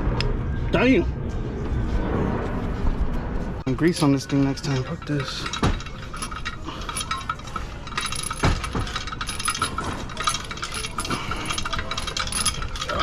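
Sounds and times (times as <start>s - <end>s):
hand tools clicking and clanking: 3.7s - 13.0s.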